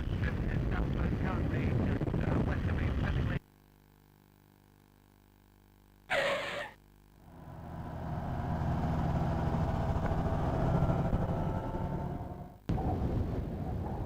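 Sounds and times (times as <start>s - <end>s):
light aircraft engine running: 7.3s - 12.6s.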